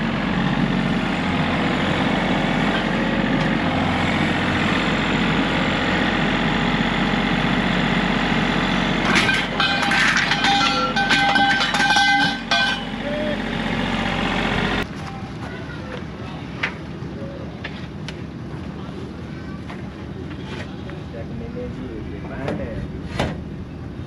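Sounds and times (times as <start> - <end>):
vehicle engine idling: 0.0 - 24.0
metallic clattering: 9.1 - 13.0.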